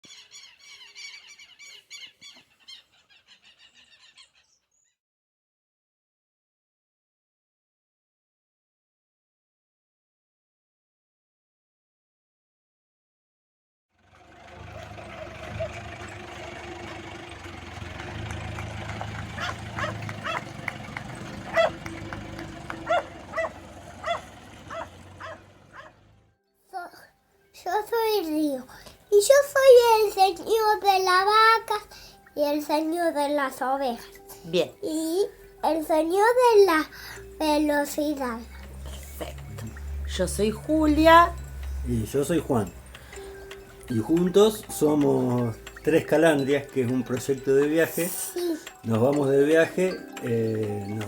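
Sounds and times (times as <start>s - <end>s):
birds chirping: 0.0s - 5.0s, 14.2s - 26.3s, 27.9s - 51.0s
vehicle engine idling: 14.0s - 26.3s, 36.7s - 47.8s
dog barking: 19.3s - 20.8s, 21.4s - 22.0s, 22.7s - 26.0s.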